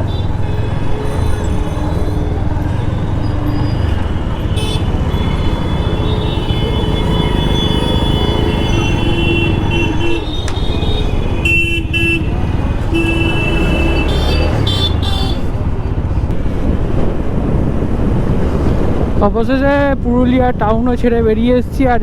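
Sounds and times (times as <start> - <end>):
wind rumble on microphone: 14.5 - 22.0.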